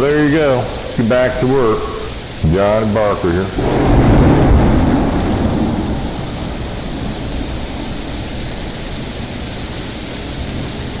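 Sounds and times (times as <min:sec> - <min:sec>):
hailstones clattering: 0:03.6 - 0:09.9.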